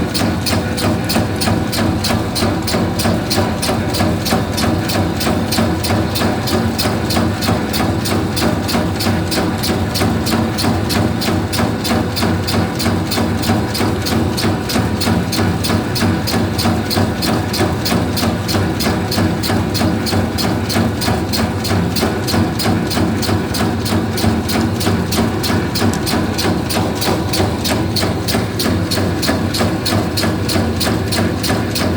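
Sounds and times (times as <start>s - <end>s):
fast mechanical clicking: 0.0s - 31.9s
motor hum: 22.6s - 31.2s.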